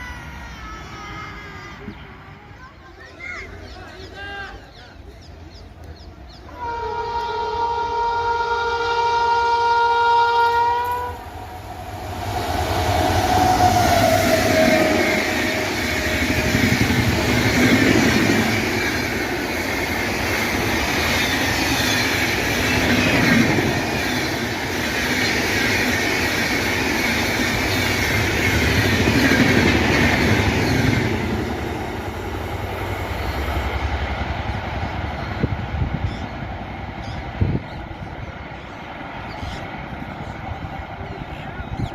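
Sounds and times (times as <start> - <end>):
train rushing past: 6.0 - 41.9
train horn blast: 6.5 - 11.8, 13.0 - 16.6.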